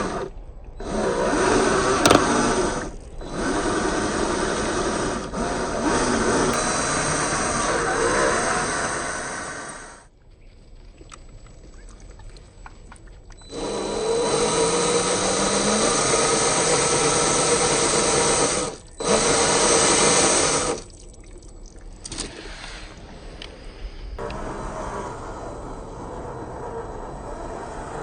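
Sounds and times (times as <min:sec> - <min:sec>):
electric motor whirring: 0:01.4 - 0:02.6, 0:13.5 - 0:20.8.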